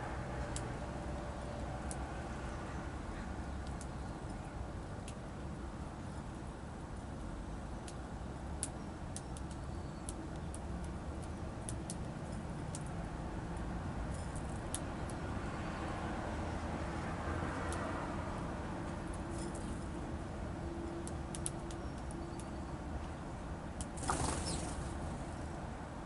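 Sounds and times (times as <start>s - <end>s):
distant traffic rumble: 0.0s - 26.0s
birds ticking: 21.0s - 25.5s.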